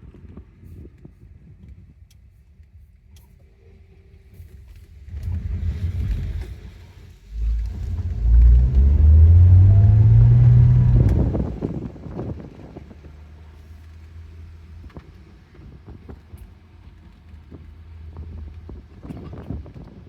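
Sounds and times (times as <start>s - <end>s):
car engine accelerating: 5.1s - 15.6s.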